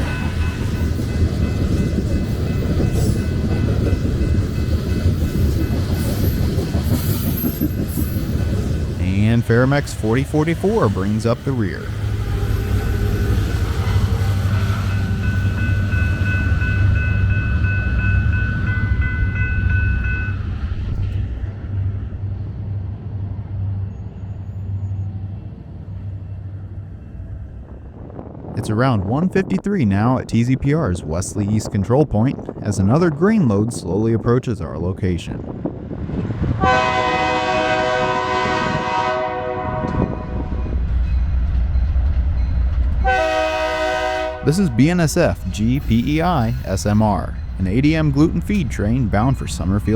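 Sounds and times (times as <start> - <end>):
freight train rumbling past: 0.0 - 49.9
locomotive air horn blast: 36.6 - 40.5, 43.0 - 46.8.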